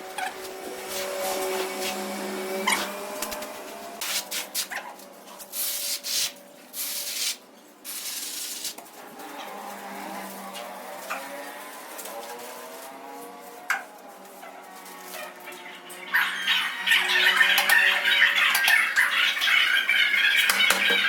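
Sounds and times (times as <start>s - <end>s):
scraping and rubbing: 0.2s - 13.8s.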